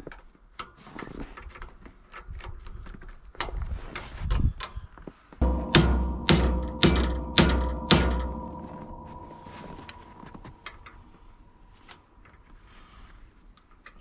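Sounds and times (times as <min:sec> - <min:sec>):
metal being struck ringing: 0:05.4 - 0:11.5.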